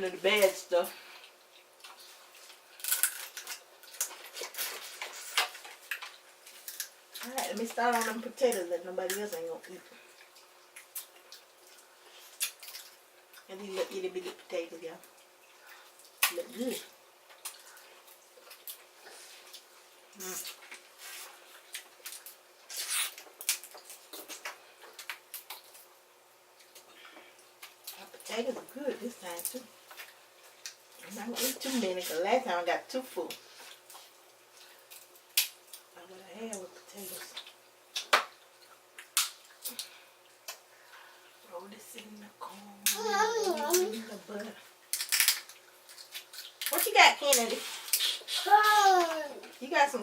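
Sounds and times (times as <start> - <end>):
wet chewing and mouth smacking: 17.2 - 19.7, 44.8 - 46.7.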